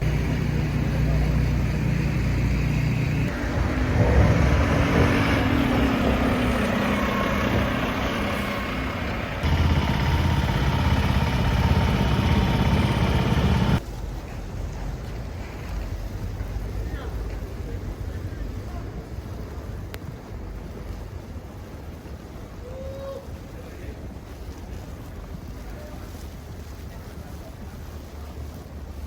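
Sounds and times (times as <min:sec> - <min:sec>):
loud vehicle engine: 0:00.0 - 0:13.8
traffic noise: 0:00.0 - 0:14.5.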